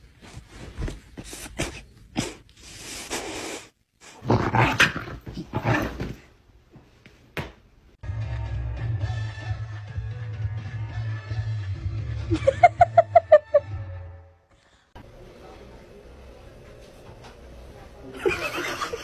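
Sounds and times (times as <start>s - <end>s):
music: 8.0s - 14.6s.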